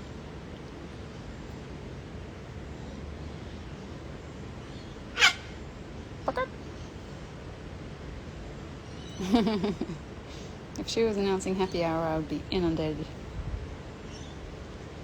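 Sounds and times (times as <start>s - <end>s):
low outdoor background: 0.0s - 15.0s
cockatoo calling: 4.8s - 6.8s.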